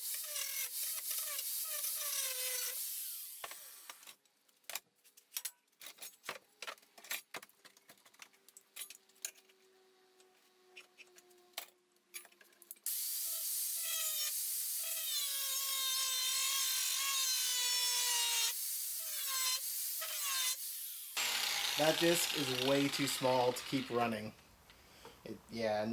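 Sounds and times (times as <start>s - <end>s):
angle grinder grinding steel: 12.9s - 24.3s.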